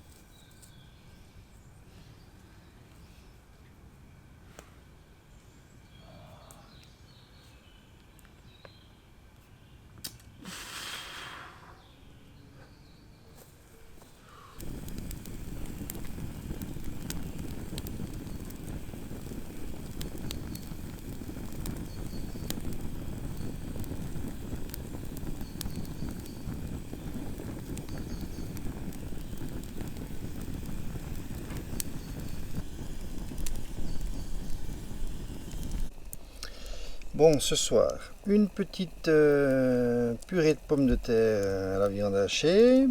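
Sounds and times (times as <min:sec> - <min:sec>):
campfire flames rushing: 0:10.0 - 0:11.9, 0:13.4 - 0:42.9
fire crackling and popping: 0:10.0 - 0:11.9, 0:13.3 - 0:42.9.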